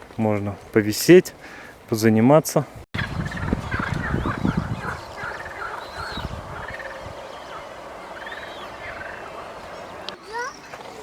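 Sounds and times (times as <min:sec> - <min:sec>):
birds chattering: 0:03.0 - 0:11.0
thin bird chirps: 0:03.0 - 0:11.0.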